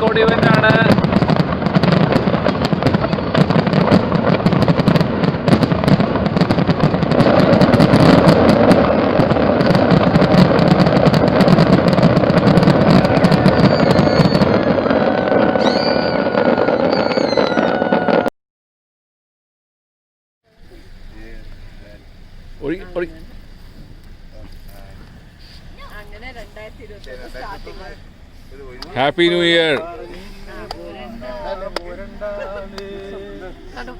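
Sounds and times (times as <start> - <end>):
fireworks crackling and popping: 0.0 - 18.3, 20.5 - 33.9
thin steady tones: 20.5 - 33.9.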